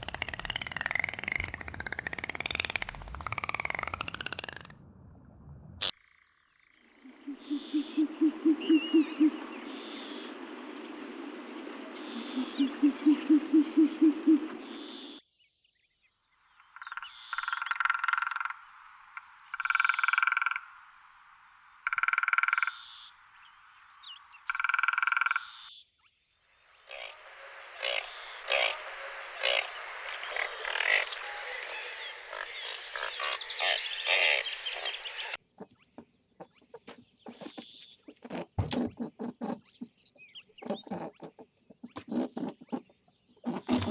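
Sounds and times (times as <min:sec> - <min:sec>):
frogs low pulsed croaks: 0:00.0 - 0:15.2, 0:15.8 - 0:37.0
higher frog calls: 0:05.9 - 0:15.2, 0:16.5 - 0:25.8, 0:26.4 - 0:35.8
frog chorus: 0:06.1 - 0:15.2, 0:16.2 - 0:43.9.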